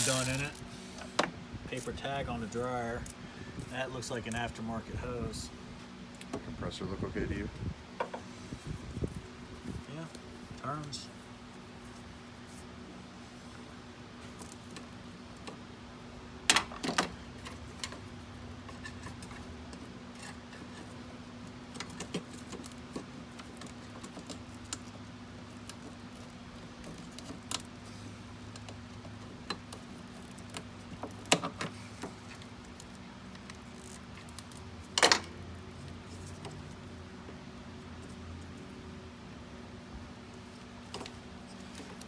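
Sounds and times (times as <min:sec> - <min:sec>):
metal tools clinking: 0:00.0 - 0:00.6.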